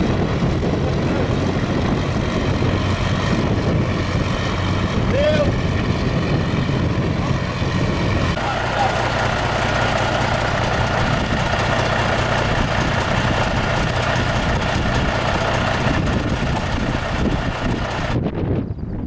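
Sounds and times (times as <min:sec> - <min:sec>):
heavy diesel engine running: 0:00.0 - 0:18.3.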